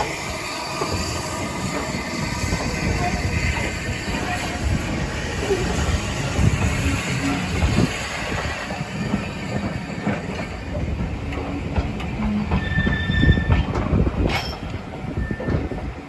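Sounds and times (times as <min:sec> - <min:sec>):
train rumbling past: 0:00.0 - 0:16.0
high wheel squeal: 0:12.3 - 0:13.8, 0:15.2 - 0:15.7.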